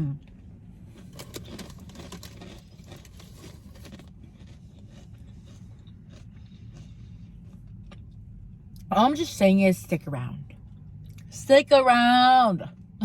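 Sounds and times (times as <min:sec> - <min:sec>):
low steady rumble: 0:00.0 - 0:13.0
person chewing: 0:00.3 - 0:08.8.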